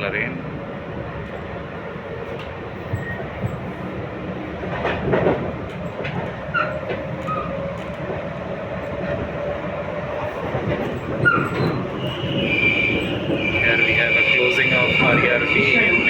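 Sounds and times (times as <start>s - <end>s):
train wheels rumbling on track: 0.0s - 16.0s
train knocks: 2.2s - 3.8s, 4.6s - 8.2s, 8.8s - 16.0s.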